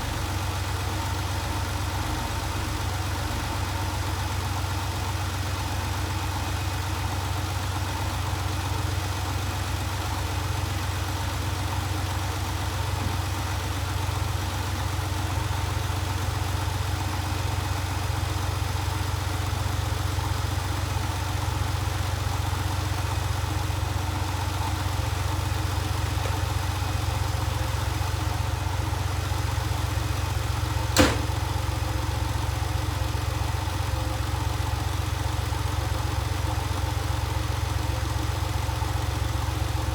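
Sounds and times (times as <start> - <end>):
car engine idling: 0.0 - 39.9
sharp click: 31.0 - 31.5.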